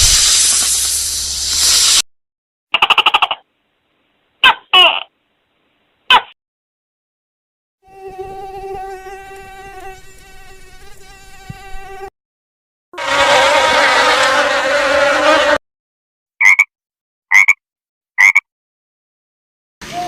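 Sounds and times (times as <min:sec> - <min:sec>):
insect buzzing: 0:07.8 - 0:12.1.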